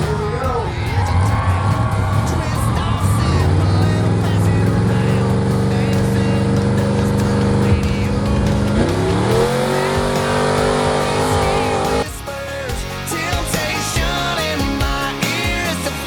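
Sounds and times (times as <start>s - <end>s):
truck engine revving hard: 0.0s - 12.1s.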